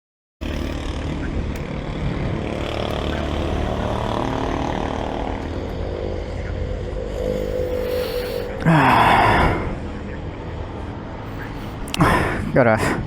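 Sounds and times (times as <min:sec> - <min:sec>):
motorcycle engine running: 0:00.4 - 0:07.1.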